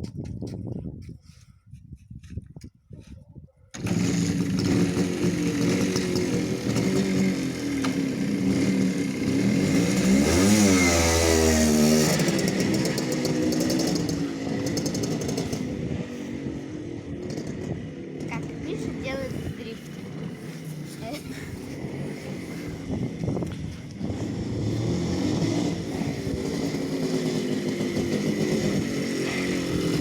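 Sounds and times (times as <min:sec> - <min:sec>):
two-stroke motorcycle engine revving: 0:03.7 - 0:30.0.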